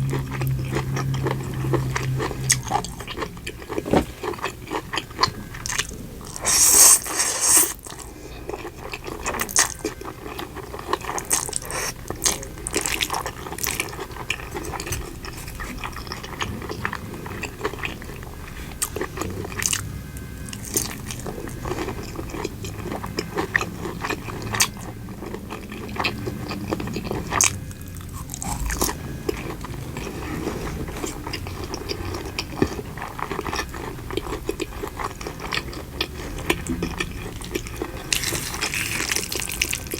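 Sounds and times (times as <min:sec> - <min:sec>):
chewing with crackles: 0:00.0 - 0:39.9.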